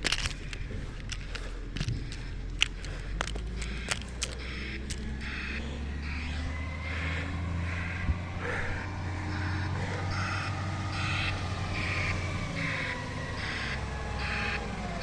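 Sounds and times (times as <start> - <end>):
truck engine humming: 0.0 - 15.0
reversing alarm hissing bursts: 3.7 - 15.0.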